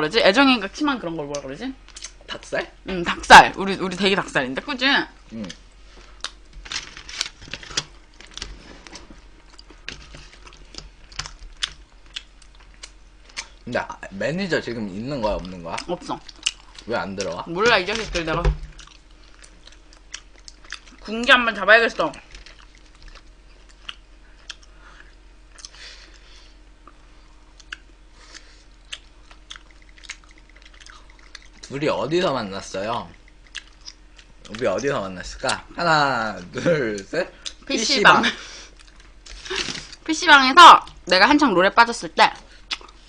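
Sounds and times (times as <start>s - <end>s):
people eating crunchy food: 5.2s - 40.1s, 42.4s - 43.0s
chewing and biting chicken: 15.4s - 17.4s, 18.7s - 21.1s, 22.2s - 26.2s, 27.4s - 31.7s, 32.8s - 34.8s
mouth and teeth clicks: 27.6s - 31.6s, 33.1s - 34.6s.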